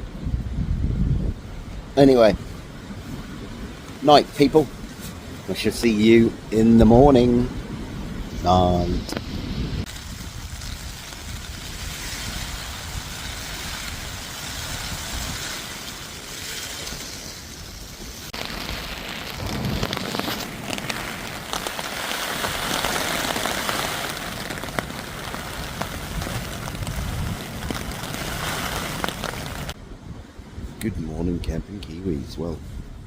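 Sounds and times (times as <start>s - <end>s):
wind gusting: 0.0s - 33.0s
heavy rain on a tarp: 7.2s - 29.8s.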